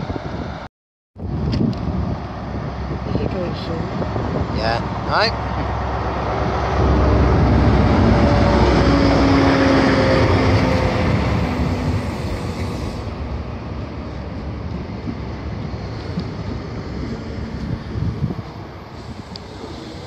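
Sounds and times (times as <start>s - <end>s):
diesel locomotive engine whine: 0.0s - 20.0s
train wheels on rails: 4.0s - 20.0s.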